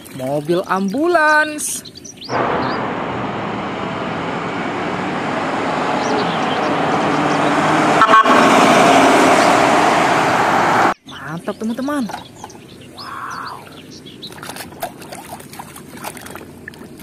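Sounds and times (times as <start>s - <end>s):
road noise: 1.8s - 14.8s
ambulance horn blaring: 6.3s - 9.8s.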